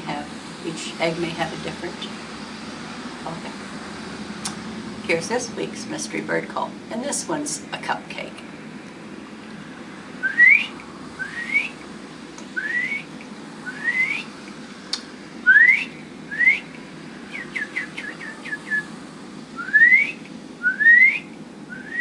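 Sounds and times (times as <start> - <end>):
woman whistling bird call: 10.2 - 11.8, 12.6 - 13.1, 13.7 - 14.3, 15.5 - 16.7, 17.4 - 18.8, 19.6 - 22.0.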